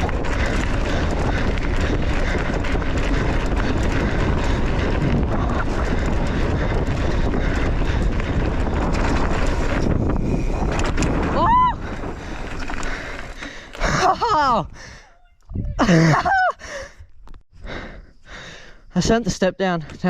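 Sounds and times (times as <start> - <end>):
bike rattling and knocking: 0.0 - 14.6
tyres rumbling on dirt: 0.0 - 14.7
wind buffeting microphone: 0.0 - 18.8.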